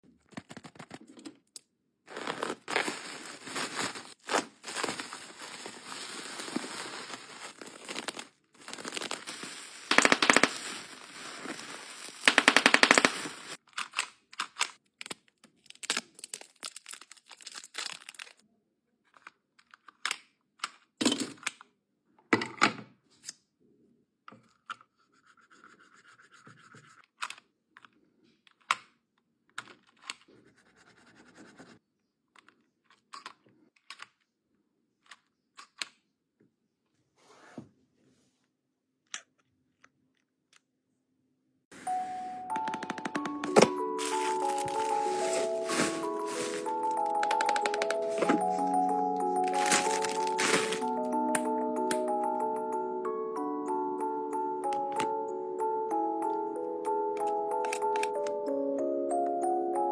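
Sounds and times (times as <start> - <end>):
packaging rustling and scraping: 2.1 - 13.6, 41.8 - 51.0.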